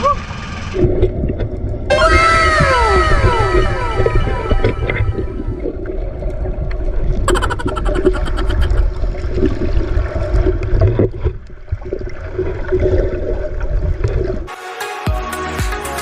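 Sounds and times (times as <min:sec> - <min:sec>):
boat engine deep rumble: 0:00.0 - 0:09.3
water noise: 0:00.0 - 0:14.6.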